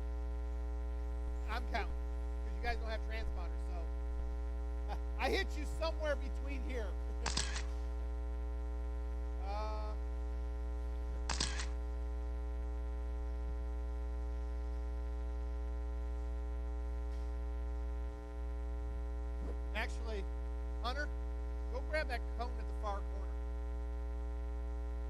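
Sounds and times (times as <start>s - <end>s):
electrical mains hum: 0.0s - 25.0s
sharp click: 7.2s - 7.8s, 11.2s - 11.8s.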